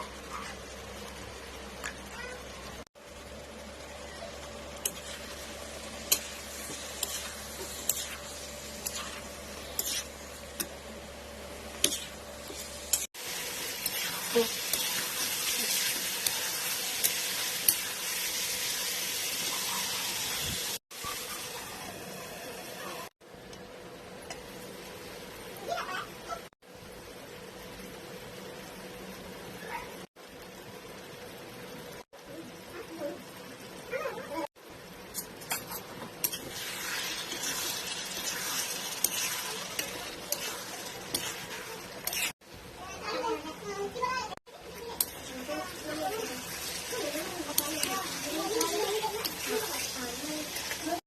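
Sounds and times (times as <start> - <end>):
curry sizzling in a pan: 0.0 - 23.2, 24.0 - 51.0.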